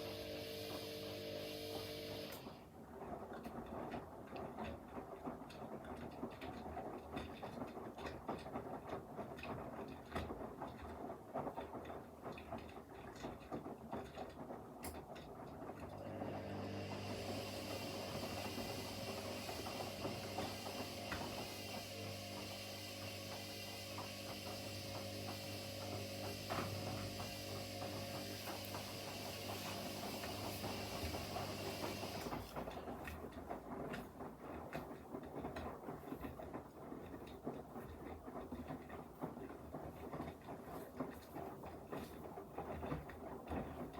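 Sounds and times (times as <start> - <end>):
pump motor hum and hiss: 0.0 - 2.6, 16.0 - 33.2.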